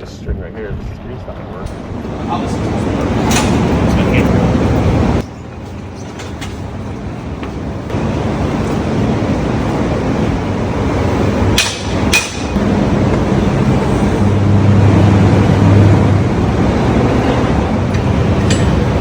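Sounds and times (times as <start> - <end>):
truck engine running: 1.7 - 19.0
sharp metallic clacks: 11.6 - 12.6.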